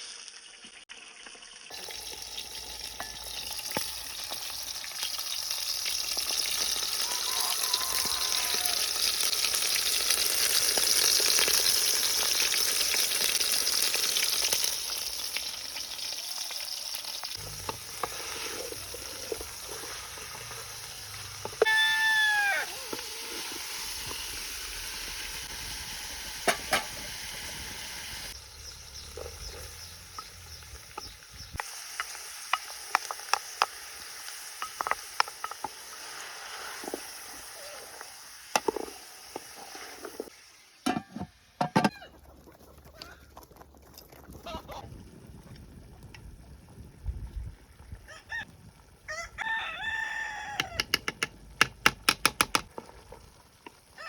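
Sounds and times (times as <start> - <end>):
rooster crowing: 7.0 - 9.0, 21.6 - 22.9, 49.1 - 50.9
sharp clicks and knocks: 50.6 - 52.7.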